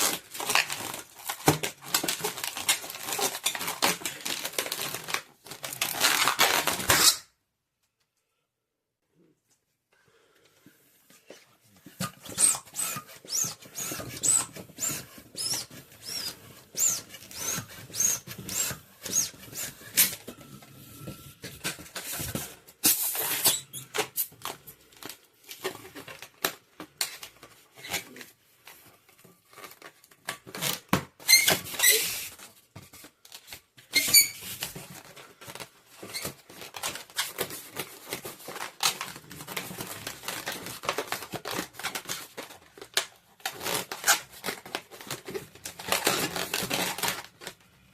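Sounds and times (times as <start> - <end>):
balloons squeaking: 0.0 - 7.3, 11.3 - 24.6, 30.5 - 32.5, 33.8 - 47.3.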